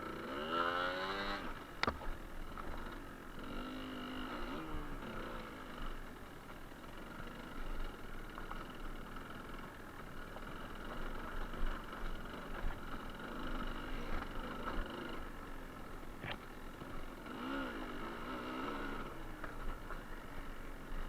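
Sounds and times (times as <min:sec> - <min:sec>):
two-stroke engine at low revs: 0:00.0 - 0:21.0.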